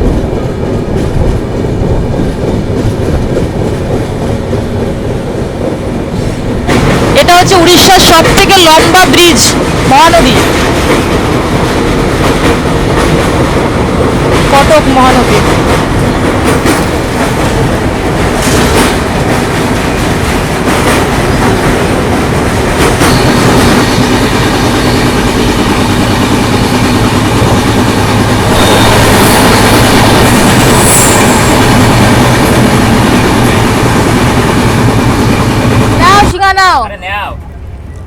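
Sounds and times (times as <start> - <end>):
train wheels rumbling and clattering: 0.0 - 38.0
high wheel squeal: 23.0 - 25.4, 28.2 - 32.0.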